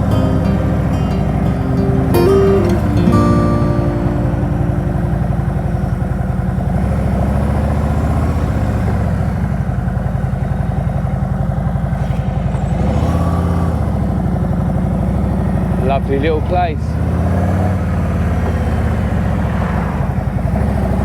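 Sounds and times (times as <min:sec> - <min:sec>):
motorcycle engine running: 0:04.9 - 0:16.2.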